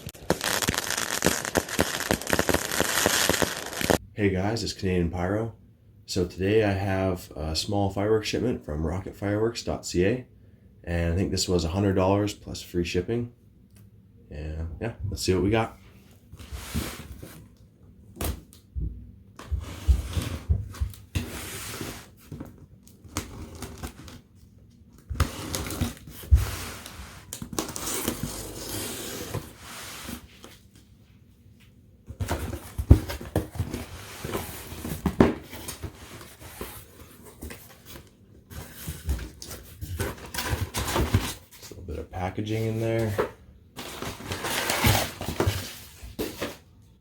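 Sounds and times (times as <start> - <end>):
cardboard tearing and rustling: 0.0 - 4.0, 23.0 - 24.2, 25.1 - 30.3, 43.8 - 46.5.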